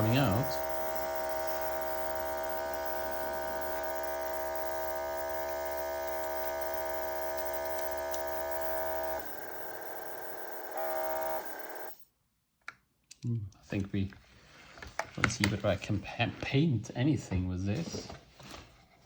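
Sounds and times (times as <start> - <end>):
airbrush compressor humming: 0.0 - 12.0.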